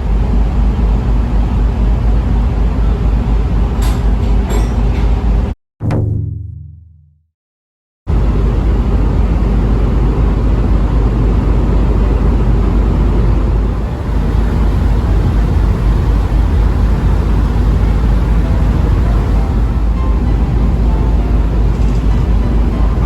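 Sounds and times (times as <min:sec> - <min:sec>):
vehicle engine rumbling: 0:13.0 - 0:23.0.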